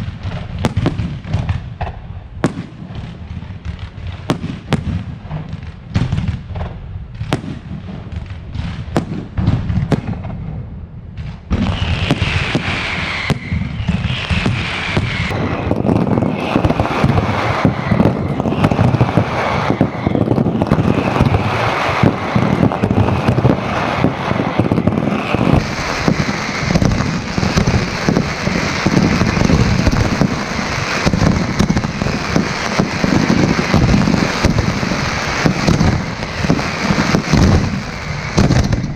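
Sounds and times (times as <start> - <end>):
fireworks bangs: 0.0 - 38.9
fireworks crackling: 0.0 - 38.9
whistles falling in pitch: 12.2 - 15.4.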